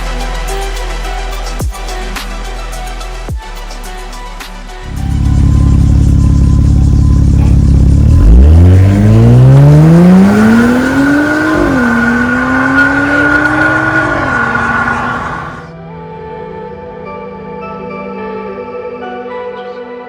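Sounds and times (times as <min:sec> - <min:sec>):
car engine accelerating: 0:04.9 - 0:15.7.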